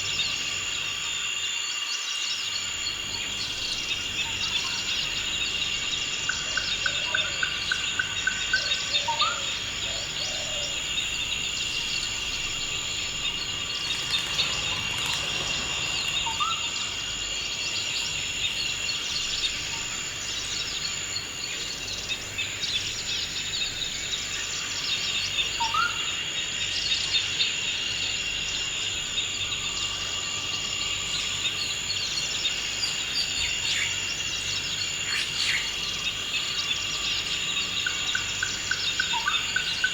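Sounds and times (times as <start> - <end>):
insects trilling: 0.0 - 39.9
birds chirping: 2.5 - 26.1.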